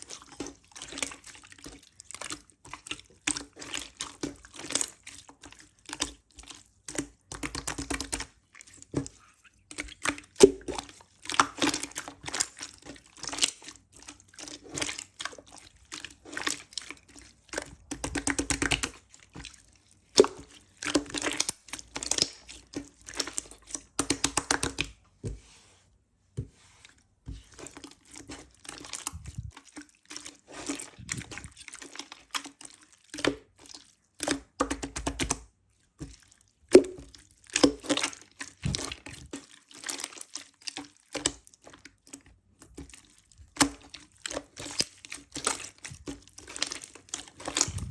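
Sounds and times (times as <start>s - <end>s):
slime squished by hand: 27.5s - 32.4s, 42.8s - 47.9s.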